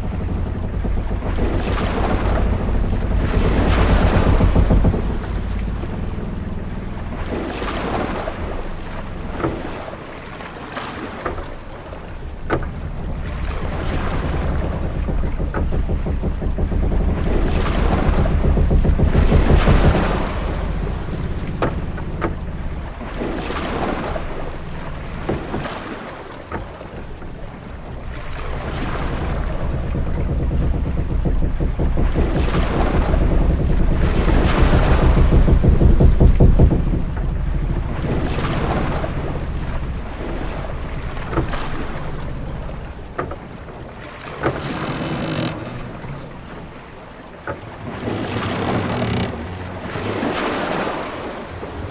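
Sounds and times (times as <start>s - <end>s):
low rumble: 0.0s - 10.4s, 11.2s - 51.4s
waves rushing against a hull: 0.0s - 51.9s
wind: 0.0s - 51.9s
short sharp knocks: 26.5s - 46.9s.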